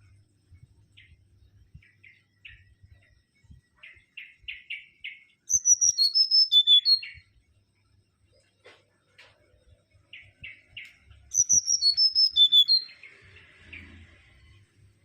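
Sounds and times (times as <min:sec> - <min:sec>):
scratchy bird chirps: 0:03.8 - 0:07.2, 0:10.3 - 0:14.6
bird whistled phrase: 0:05.5 - 0:07.2, 0:11.3 - 0:12.9.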